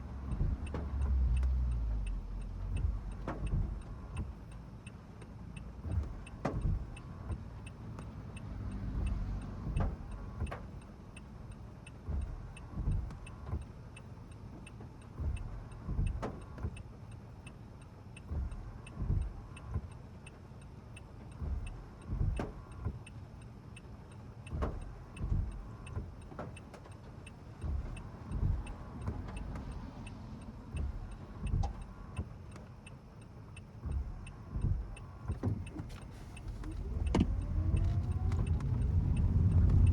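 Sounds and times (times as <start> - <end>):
car rumble: 0.0 - 39.9
turn signal ticking: 0.0 - 39.9
low thumps: 33.8 - 39.9.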